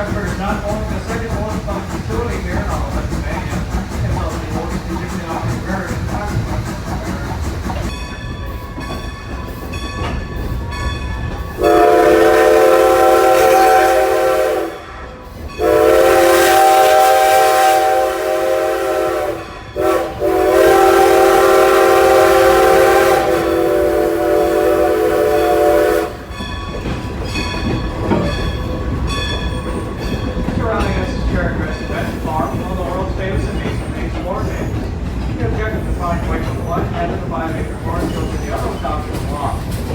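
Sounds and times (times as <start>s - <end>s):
train rumbling: 0.0s - 39.9s
steam locomotive whistle: 11.5s - 26.3s.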